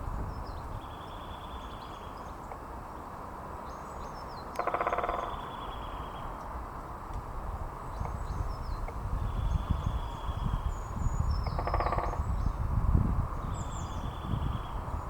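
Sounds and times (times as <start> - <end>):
woodpecker drumming on wood: 4.6 - 5.4, 11.4 - 12.2.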